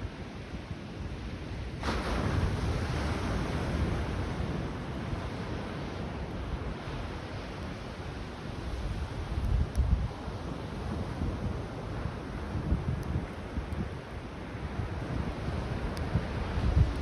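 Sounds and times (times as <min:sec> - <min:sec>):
sea wave breaking on beach: 0:01.8 - 0:04.4
wind on microphone: 0:08.7 - 0:14.2, 0:14.8 - 0:17.0.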